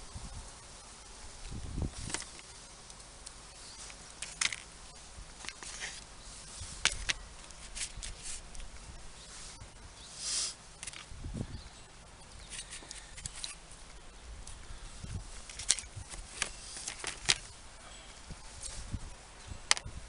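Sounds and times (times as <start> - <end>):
hand tools clicking and snapping: 3.9 - 4.7, 6.7 - 8.7, 15.4 - 17.5.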